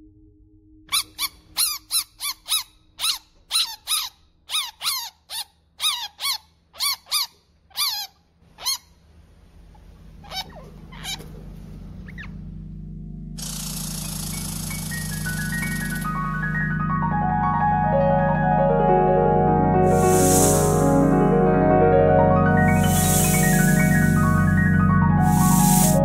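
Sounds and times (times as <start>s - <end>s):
bird squeaky calls: 0.9s - 9.0s, 10.2s - 11.4s, 12.0s - 12.3s, 25.2s - 26.0s.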